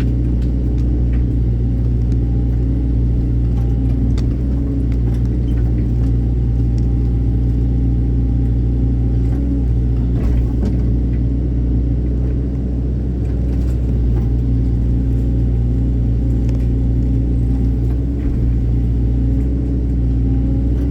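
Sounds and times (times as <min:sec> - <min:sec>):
faint clicks and knocks: 0:00.0 - 0:07.8
excavator diesel engine running: 0:00.0 - 0:20.9.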